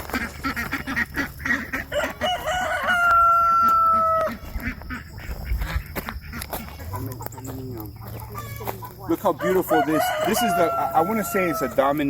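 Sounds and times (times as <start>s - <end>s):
chickens clucking: 0.0s - 12.0s
rooster crowing: 1.9s - 4.4s, 9.2s - 12.0s.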